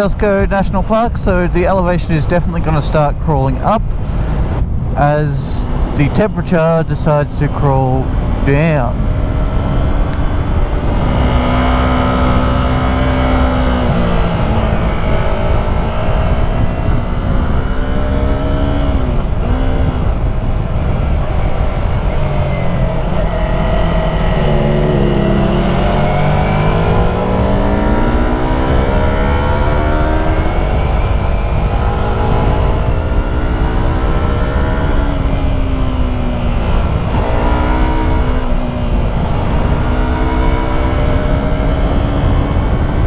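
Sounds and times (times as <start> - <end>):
motorcycle engine revving: 0.0 - 43.0
wind rush: 0.0 - 43.0.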